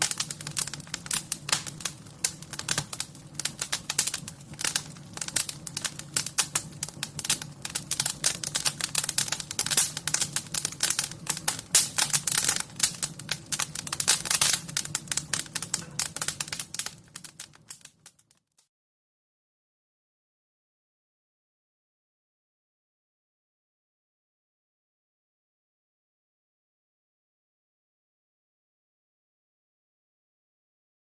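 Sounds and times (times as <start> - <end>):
wood fire crackling: 0.0 - 18.6.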